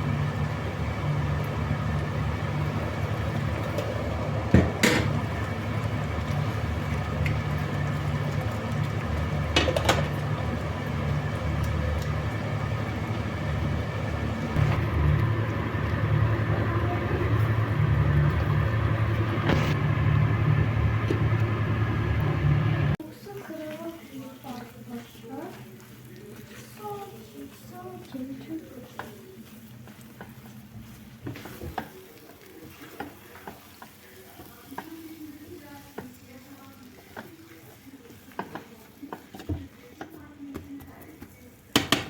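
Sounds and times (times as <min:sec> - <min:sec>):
motor humming: 0:00.0 - 0:23.0.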